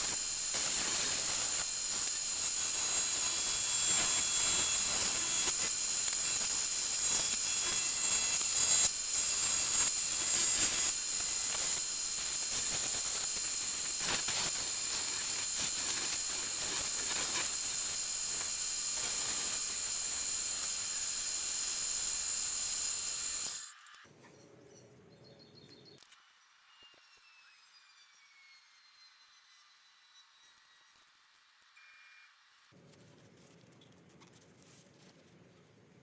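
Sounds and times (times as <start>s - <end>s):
loud hissing with high whine: 0.0s - 23.9s.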